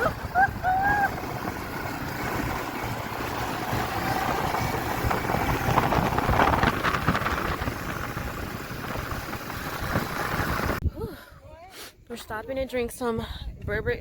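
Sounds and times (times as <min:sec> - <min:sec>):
quad bike engine running: 0:00.0 - 0:10.8
wind buffeting microphone: 0:00.0 - 0:11.7, 0:12.3 - 0:14.0.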